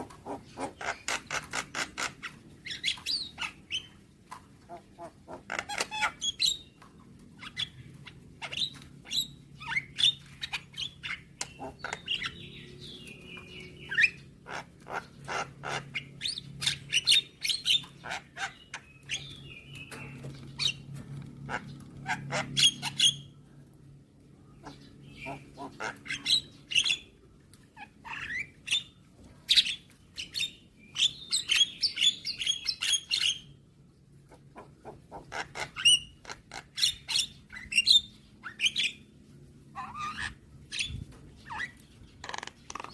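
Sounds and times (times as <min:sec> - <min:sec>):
faint low hum: 0:00.0 - 0:42.9
myna chattering and calling: 0:24.6 - 0:26.4.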